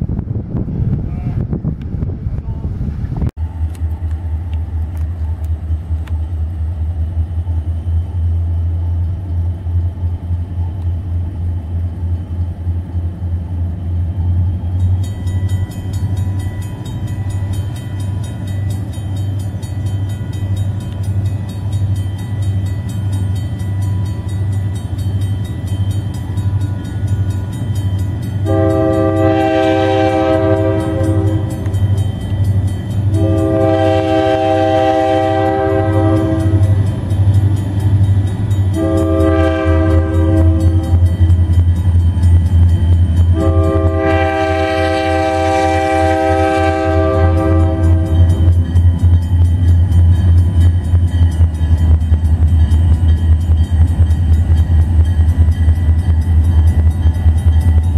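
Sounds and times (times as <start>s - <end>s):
locomotive engine drone: 0.0s - 57.9s
crossing bell ringing: 14.2s - 57.9s
train air horn blast: 28.4s - 31.6s, 33.2s - 36.8s, 38.8s - 41.0s, 43.3s - 48.4s.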